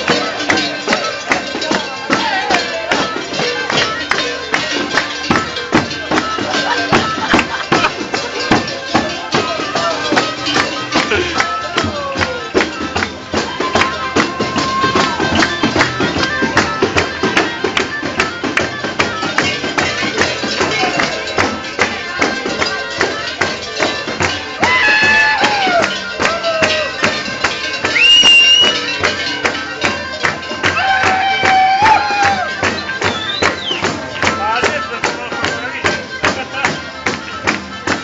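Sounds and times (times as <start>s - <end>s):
tambourine beating fast rhythm: 0.0s - 38.0s.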